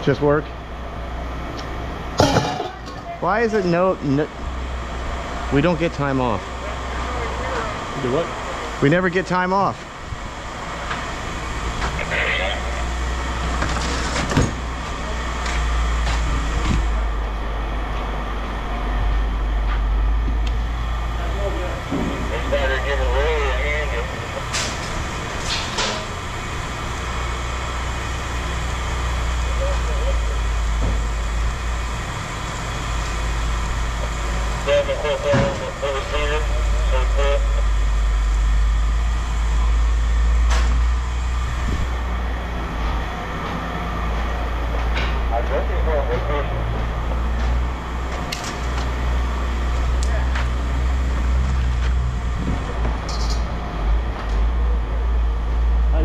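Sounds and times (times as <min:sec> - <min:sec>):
vehicle engine idling: 0:00.0 - 0:56.0
metallic clank: 0:02.2 - 0:03.0.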